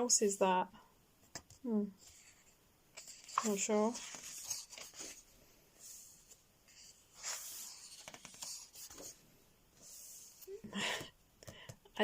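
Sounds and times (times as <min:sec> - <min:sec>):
paper pages turning: 0:02.0 - 0:09.2.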